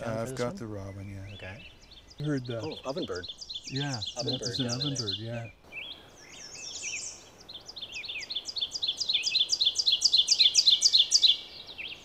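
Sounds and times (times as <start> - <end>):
other birds calling faintly: 0.0 - 12.0
bird song repeated two-note phrases: 1.0 - 5.6.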